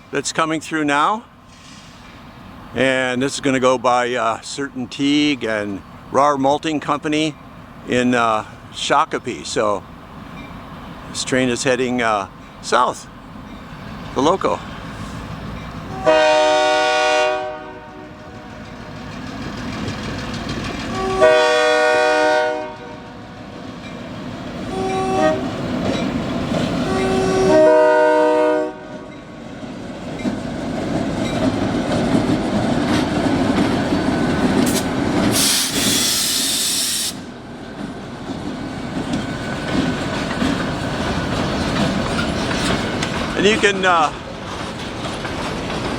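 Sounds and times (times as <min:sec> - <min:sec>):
train rumbling past: 0:00.0 - 0:45.9
brief hiss: 0:01.5 - 0:02.3, 0:34.7 - 0:37.3
locomotive horn: 0:15.9 - 0:18.6, 0:20.9 - 0:23.4, 0:24.7 - 0:25.6, 0:26.8 - 0:29.2
wheels clicking over rails: 0:18.5 - 0:21.2, 0:37.7 - 0:45.9.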